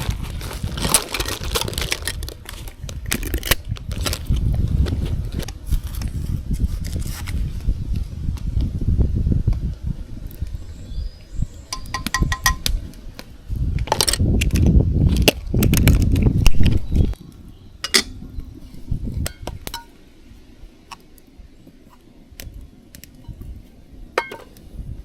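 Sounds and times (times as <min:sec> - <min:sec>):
camp cookware clinking: 0:11.7 - 0:12.7, 0:17.8 - 0:18.2, 0:19.2 - 0:20.0, 0:24.1 - 0:24.6.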